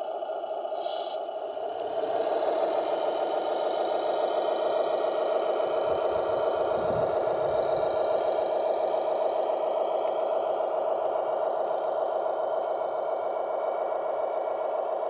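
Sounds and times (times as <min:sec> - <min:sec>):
model vehicle motor drone: 0:00.0 - 0:15.0
rattle: 0:00.6 - 0:08.9.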